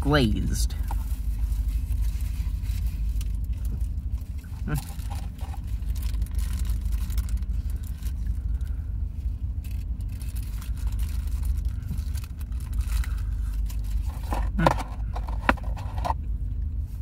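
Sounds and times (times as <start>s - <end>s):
car engine idling: 0.0s - 17.0s
paper wrapper crinkling: 1.0s - 8.7s, 9.5s - 14.6s.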